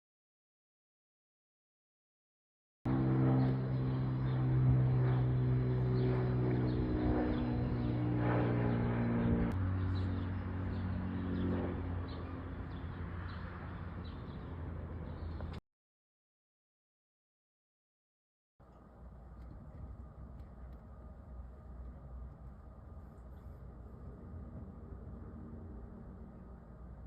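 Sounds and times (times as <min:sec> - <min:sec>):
aircraft engine hum: 0:02.9 - 0:15.6, 0:18.6 - 0:27.0.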